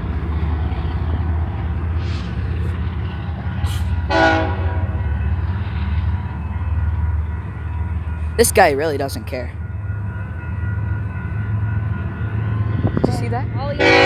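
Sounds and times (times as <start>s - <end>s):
freight train rumbling: 0.0s - 14.0s
train horn blast: 4.1s - 5.0s, 13.8s - 14.0s.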